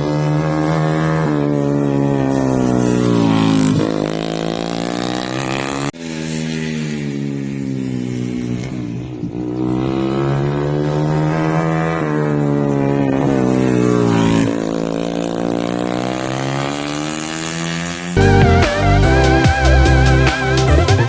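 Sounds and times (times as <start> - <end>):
racing motorcycle engines revving: 0.0 - 21.0.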